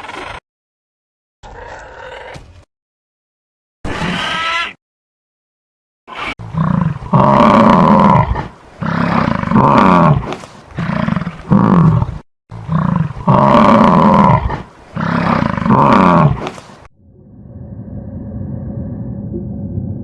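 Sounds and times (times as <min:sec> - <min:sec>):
large animal roaring: 0:06.5 - 0:10.2, 0:10.8 - 0:16.5.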